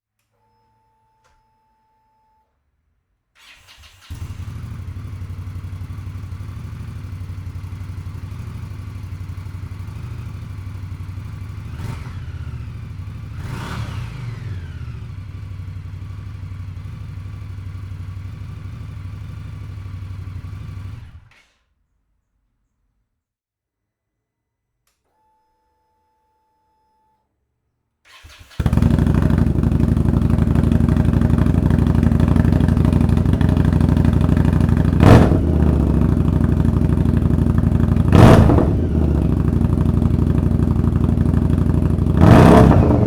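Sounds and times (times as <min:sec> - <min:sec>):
motorcycle engine starting and idling: 0:03.4 - 0:21.7, 0:28.1 - 0:43.0
engine throttle blips: 0:28.1 - 0:43.0.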